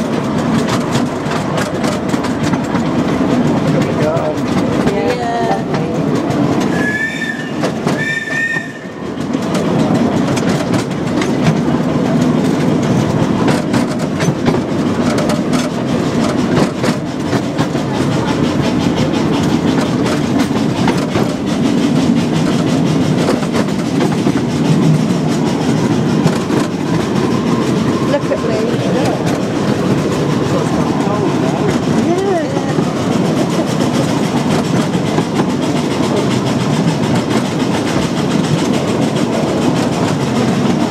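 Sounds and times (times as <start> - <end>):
train wheels clattering on rails: 0.0 - 40.9
locomotive whistle toots: 6.7 - 9.1.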